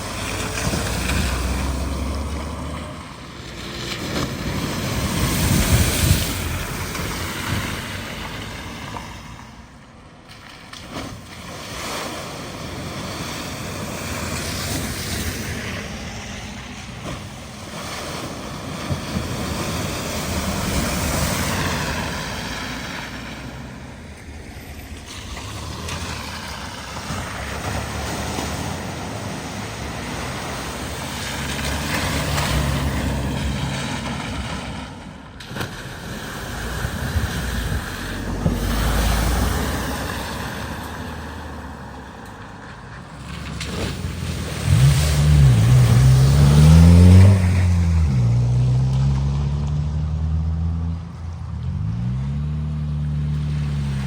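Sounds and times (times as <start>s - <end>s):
vehicle engine noise: 0.0s - 54.0s
water splashing and surging: 0.0s - 54.0s
engine revving loudly: 44.4s - 51.0s.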